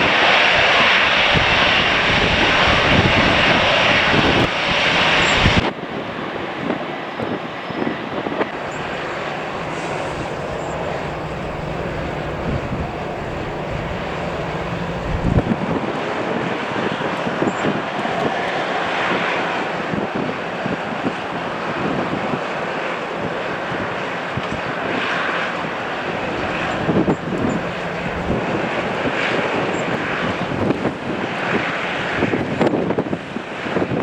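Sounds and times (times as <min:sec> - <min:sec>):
jet engines rushing: 0:00.0 - 0:05.6, 0:08.4 - 0:15.7, 0:18.2 - 0:32.5
wind buffeting microphone: 0:01.1 - 0:05.7, 0:08.3 - 0:16.0, 0:23.2 - 0:34.0.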